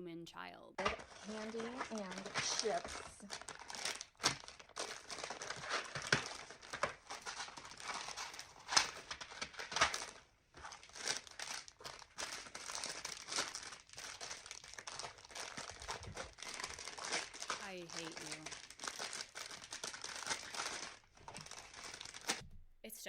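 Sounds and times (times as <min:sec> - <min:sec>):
plastic packets crinkling: 0:00.8 - 0:22.5.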